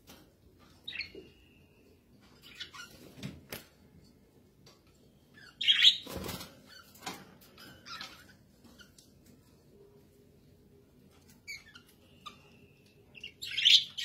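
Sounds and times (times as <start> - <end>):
budgerigars chirping: 11.5 - 14.0.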